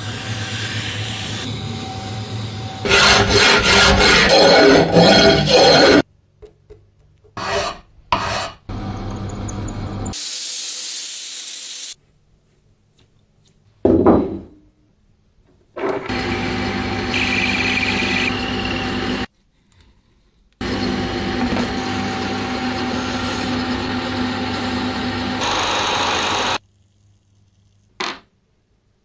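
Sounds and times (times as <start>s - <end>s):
power tool humming: 0.0s - 4.3s, 16.1s - 19.3s, 20.6s - 26.6s
scraping on metal: 2.9s - 6.0s
loud hiss: 10.2s - 12.0s.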